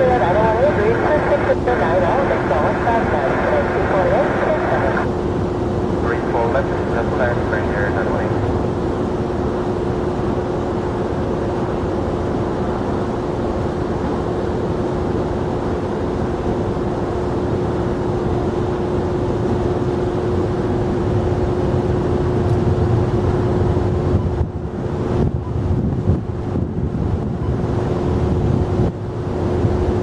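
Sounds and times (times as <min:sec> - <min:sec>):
jet engines droning: 0:00.0 - 0:24.2
wind buffeting microphone: 0:21.9 - 0:30.0.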